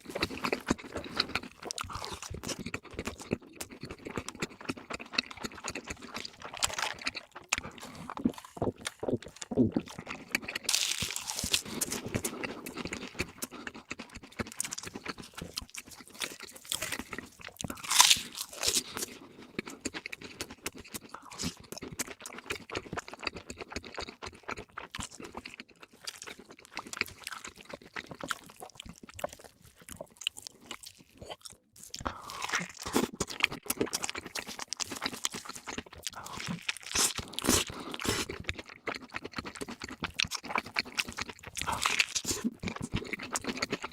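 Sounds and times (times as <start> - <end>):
crunchy food chewing: 0.0 - 43.9.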